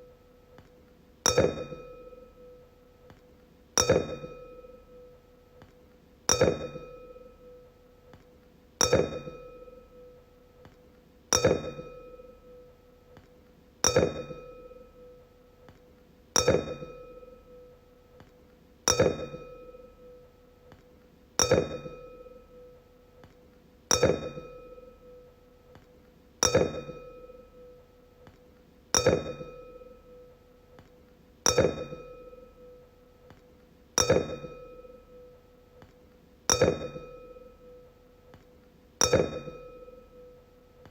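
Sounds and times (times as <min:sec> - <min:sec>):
wine glass ringing: 0:01.3 - 0:02.6, 0:03.8 - 0:05.1, 0:08.8 - 0:10.1, 0:29.0 - 0:30.3, 0:31.5 - 0:32.8, 0:34.0 - 0:35.4, 0:36.5 - 0:37.9, 0:39.0 - 0:40.5.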